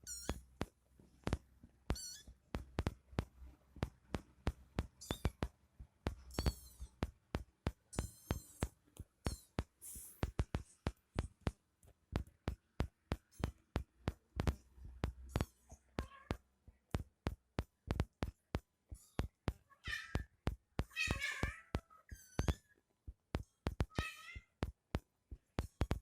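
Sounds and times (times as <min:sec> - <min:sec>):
kitten mewing: 0:20.9 - 0:22.6.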